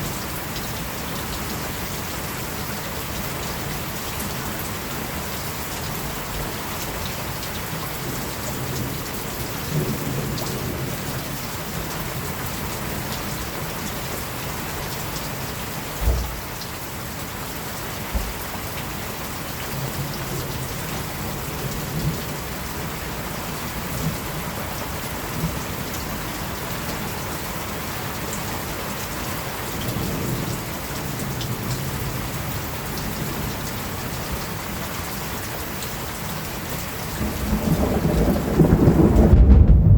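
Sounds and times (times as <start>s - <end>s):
rain falling: 0.0s - 39.9s
short low thump: 16.0s - 16.5s, 18.1s - 18.4s, 39.3s - 39.9s
distant thunder rumbling: 16.0s - 16.6s, 37.2s - 39.9s.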